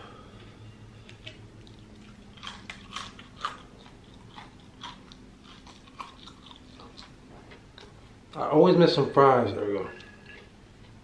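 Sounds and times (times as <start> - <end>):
chewing crunchy french fries: 1.2 - 8.5.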